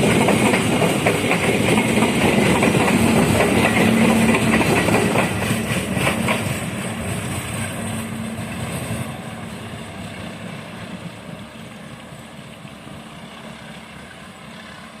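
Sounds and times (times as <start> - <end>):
train wheel clacks: 0.0 - 12.7
train rumble and hum: 0.0 - 15.0.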